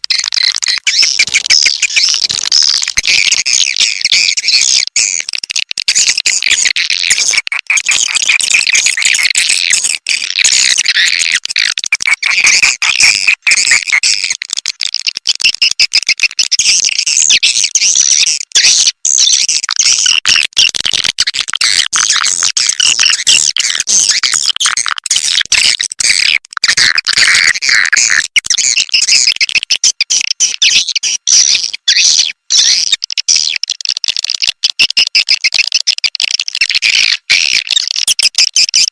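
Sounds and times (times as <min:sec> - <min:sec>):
swiftlet chirps and twitters: 0:00.2 - 0:05.2.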